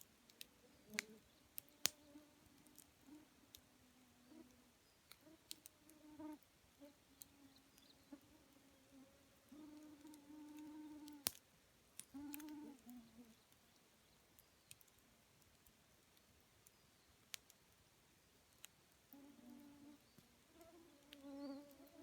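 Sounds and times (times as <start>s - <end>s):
campfire crackling: 0.0s - 22.0s
flying insect buzzing: 12.2s - 13.2s.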